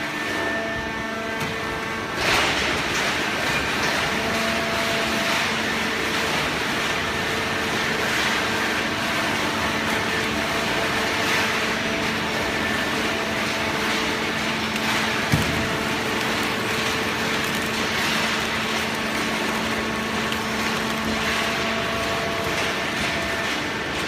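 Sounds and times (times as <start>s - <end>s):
hydraulic baler humming: 5.9s - 24.0s.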